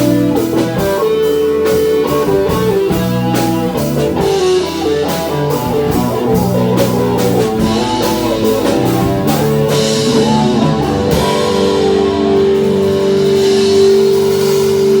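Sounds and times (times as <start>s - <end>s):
drum kit: 0.0s - 15.0s
electric guitar lead: 0.0s - 15.0s.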